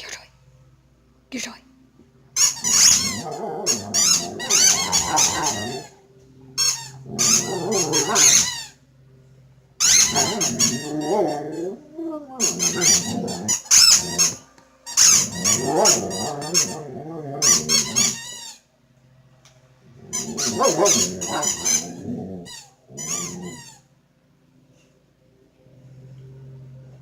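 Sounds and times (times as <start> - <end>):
squeaky toy squeaking: 2.4 - 5.9, 6.6 - 8.8, 9.8 - 11.6, 12.3 - 16.8, 17.4 - 18.6, 20.1 - 23.8.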